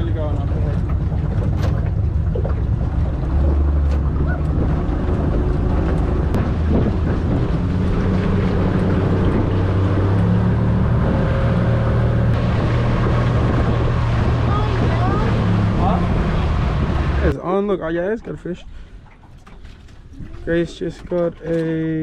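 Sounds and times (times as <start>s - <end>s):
wind buffeting microphone: 0.0s - 17.4s
boat motor humming: 0.0s - 22.0s.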